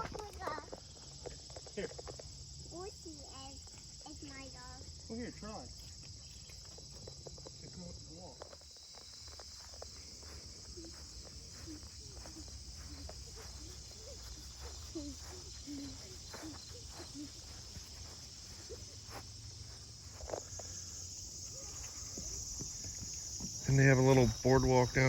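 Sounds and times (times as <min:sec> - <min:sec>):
insects chorus: 0:00.0 - 0:25.0
footsteps on a trail: 0:08.4 - 0:25.0.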